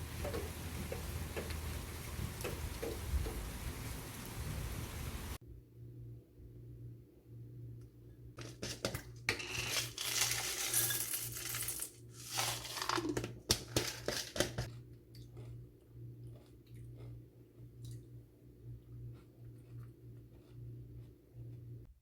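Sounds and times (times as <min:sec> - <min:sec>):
small hard objects clinking: 0:09.3 - 0:14.7
steady low hum: 0:14.6 - 0:22.0.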